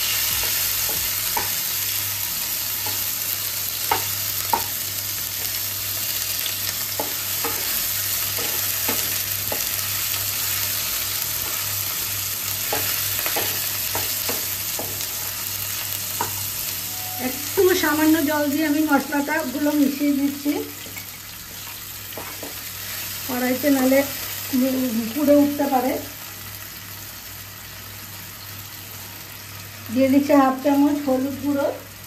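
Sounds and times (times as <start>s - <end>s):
paste sizzling in hot oil: 0.0s - 25.8s.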